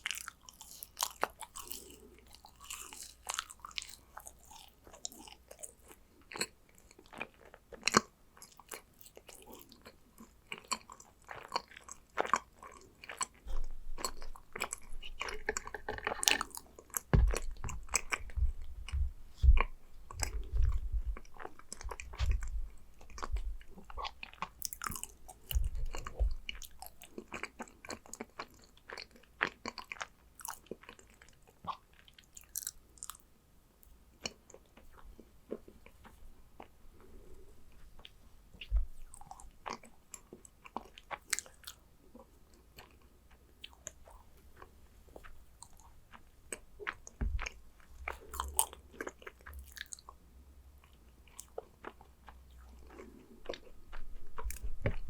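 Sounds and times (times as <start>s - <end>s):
person chewing crunchy cookies: 0.0s - 55.0s
low thuds: 17.1s - 23.8s, 25.4s - 26.6s, 47.2s - 47.6s.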